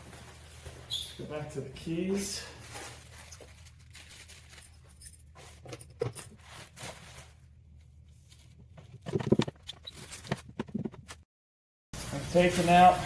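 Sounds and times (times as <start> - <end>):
packaging rustling and scraping: 2.6 - 11.2.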